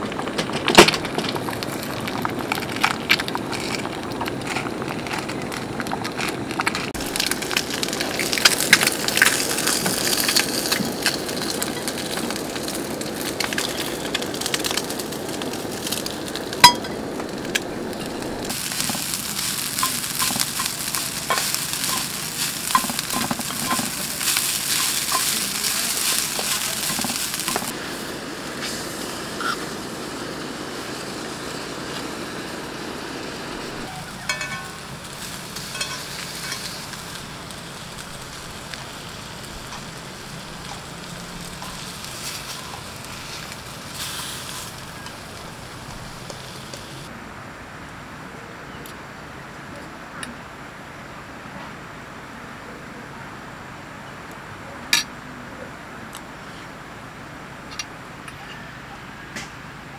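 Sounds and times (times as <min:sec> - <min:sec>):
food sizzling in a skillet: 0:06.9 - 0:47.1
spatula stirring fried rice: 0:18.5 - 0:27.7, 0:40.5 - 0:45.4.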